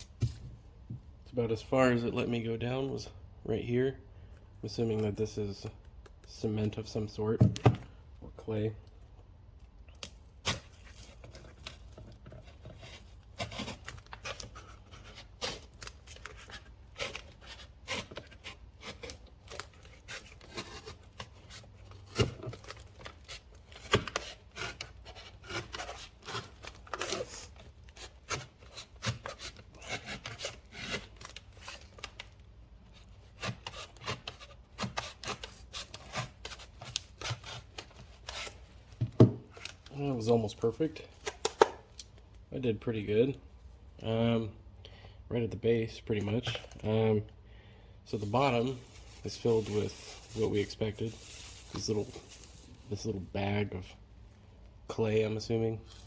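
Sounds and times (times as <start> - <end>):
blade cutting thick cardboard: 12.7 - 19.2, 19.8 - 31.2.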